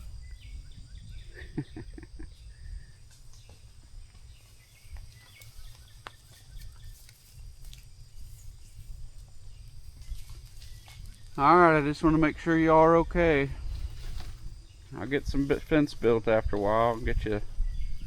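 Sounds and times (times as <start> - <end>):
insects chirring: 0.0 - 18.0
faint clicks and rustles: 3.0 - 11.4.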